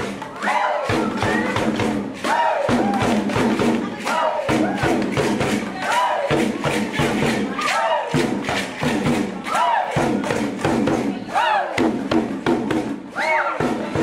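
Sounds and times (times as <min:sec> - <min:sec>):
hand drums beating: 0:00.0 - 0:14.0
group of voices shouting: 0:00.2 - 0:08.4, 0:09.4 - 0:10.4, 0:11.2 - 0:11.9.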